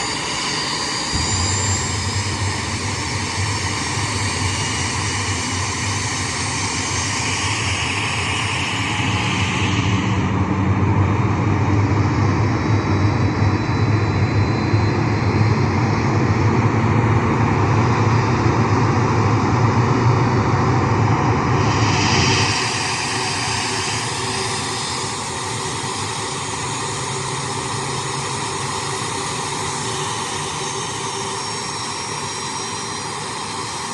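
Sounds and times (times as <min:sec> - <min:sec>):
jet engine idling: 0:00.0 - 0:33.9.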